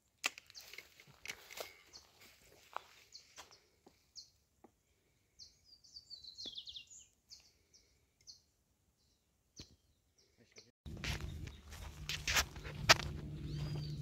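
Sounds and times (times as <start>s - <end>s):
small bird chirping: 5.4s - 14.0s.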